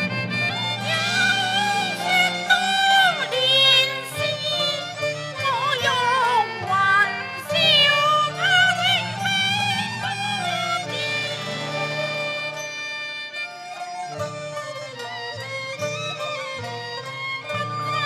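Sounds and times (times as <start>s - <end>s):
bowed string melody: 0.0s - 18.0s.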